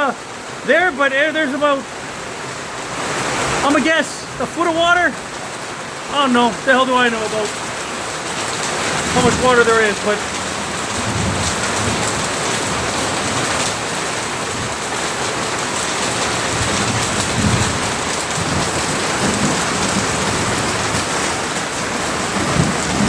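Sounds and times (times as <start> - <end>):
heavy rain pouring: 0.0 - 23.0
thunder rumbling: 6.5 - 23.0.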